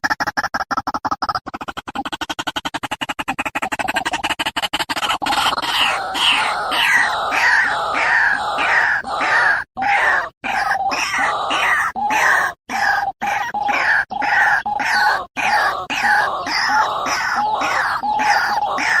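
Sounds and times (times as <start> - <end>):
waterhen calling: 5.3 - 19.0.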